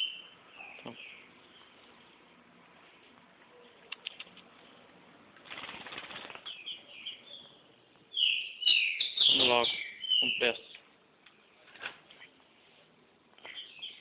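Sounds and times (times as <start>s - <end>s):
faint clicks: 3.8s - 4.5s
bird fluttering wings: 5.4s - 6.6s.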